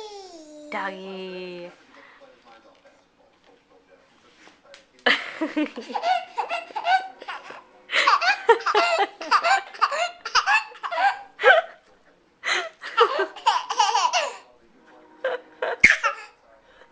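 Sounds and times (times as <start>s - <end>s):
baby laughing: 0.0s - 0.8s, 5.6s - 11.8s, 12.8s - 14.5s, 15.7s - 16.4s.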